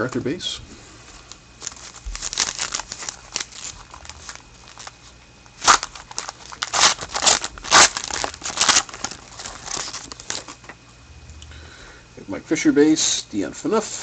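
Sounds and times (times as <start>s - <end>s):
cards and packaging crinkling: 1.1s - 10.7s.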